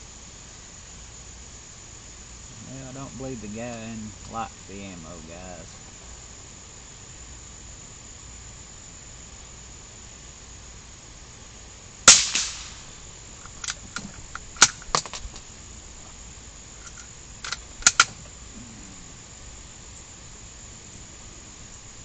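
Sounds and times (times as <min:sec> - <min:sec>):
gunshot with echo: 0:12.1 - 0:12.9.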